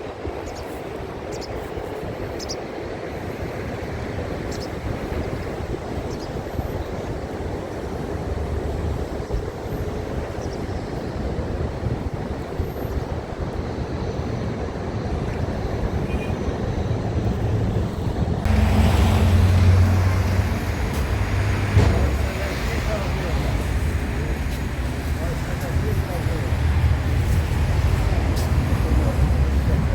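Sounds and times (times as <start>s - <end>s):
wind noise on microphone: 3.3s - 22.6s, 23.3s - 29.9s
traffic rumble: 13.6s - 29.9s
low engine hum: 15.8s - 29.9s.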